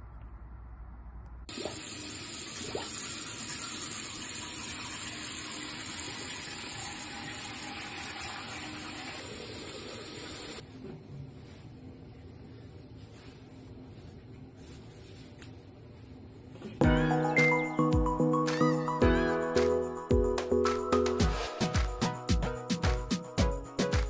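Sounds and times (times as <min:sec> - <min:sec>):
water running from tap into sink: 0:01.5 - 0:10.6.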